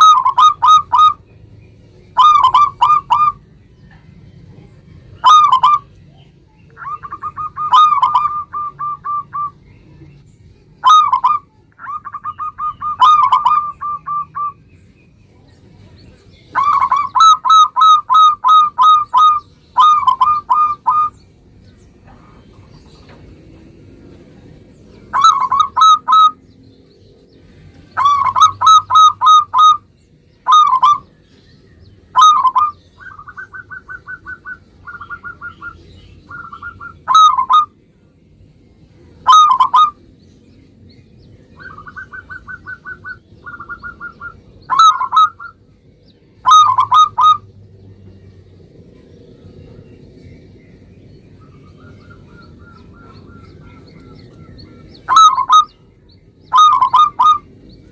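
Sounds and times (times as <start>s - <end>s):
dove cooing: 0.0s - 1.2s, 2.1s - 3.4s, 5.2s - 5.9s, 6.7s - 9.6s, 10.8s - 14.6s, 16.5s - 21.2s, 25.0s - 26.4s, 27.9s - 31.1s, 32.1s - 37.8s, 39.2s - 40.0s, 41.6s - 45.6s, 46.4s - 47.5s, 51.4s - 55.9s, 56.5s - 57.9s.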